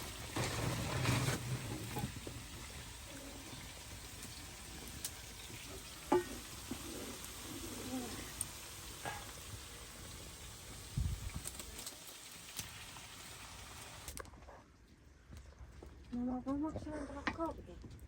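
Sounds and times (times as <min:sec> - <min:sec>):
stirring scrapes: 0:00.0 - 0:02.3
food sizzling in a pot: 0:00.0 - 0:14.2.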